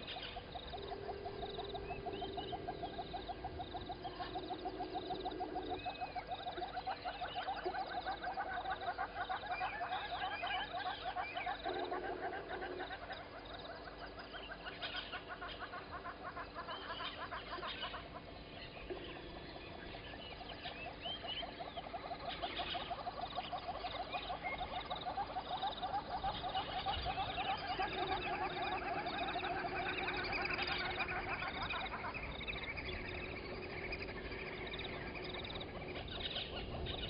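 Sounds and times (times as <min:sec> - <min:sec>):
birds chirping: 0:00.0 - 0:37.0
frogs trilling: 0:00.0 - 0:37.0.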